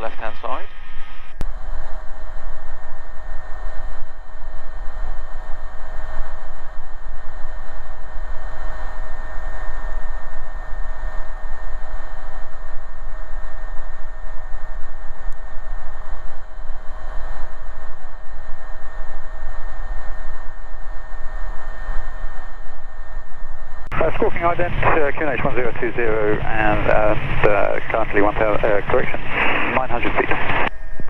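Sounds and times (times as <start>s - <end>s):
turbine whine: 0.0s - 31.0s
helicopter cockpit rushing hiss: 23.9s - 30.7s.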